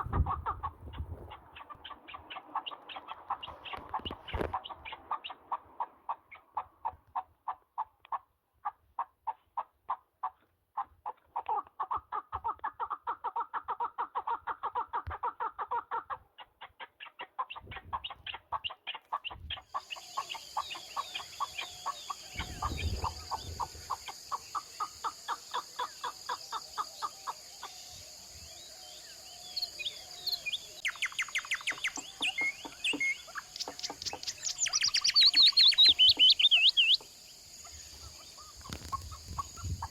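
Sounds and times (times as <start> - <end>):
small birds chirping: 0.0 - 7.0, 13.3 - 39.9
fast bird trill: 19.3 - 27.4, 29.6 - 39.9.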